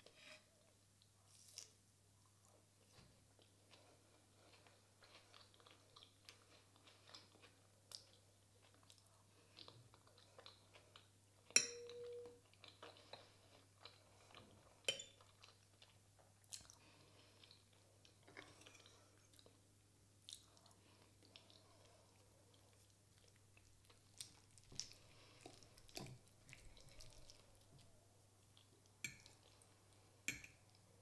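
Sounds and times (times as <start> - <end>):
person chewing: 3.4 - 19.6, 20.2 - 30.8
metal spoon clinking on bowl: 11.6 - 12.4, 14.9 - 15.2.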